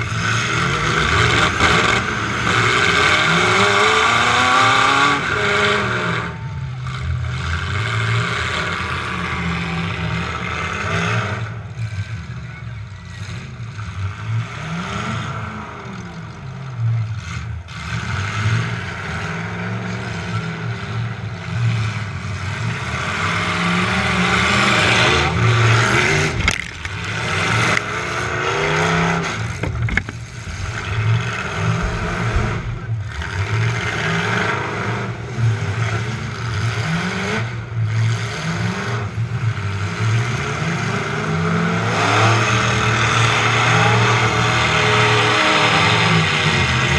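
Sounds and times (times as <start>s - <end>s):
truck engine revving: 0.0s - 12.4s, 13.0s - 46.9s
metal clatter: 26.0s - 28.0s, 29.3s - 33.8s
impact bangs: 29.3s - 34.2s.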